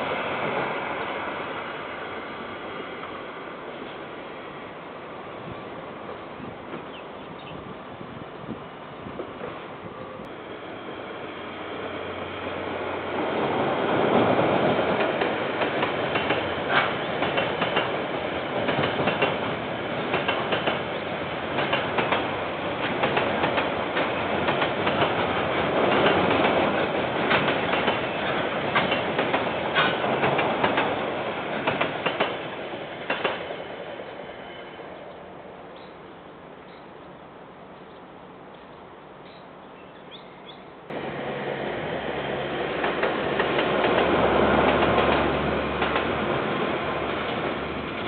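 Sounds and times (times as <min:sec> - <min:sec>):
freight train wheels clattering: 0:13.9 - 0:33.5, 0:42.6 - 0:48.0.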